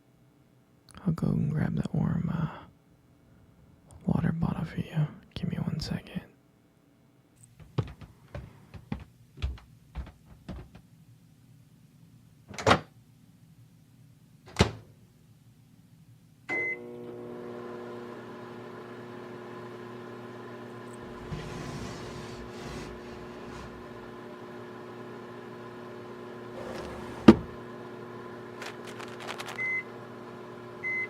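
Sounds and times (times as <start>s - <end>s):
microwave beep: 16.5s - 17.0s, 29.5s - 30.0s, 30.8s - 31.0s
microwave humming: 16.5s - 31.0s.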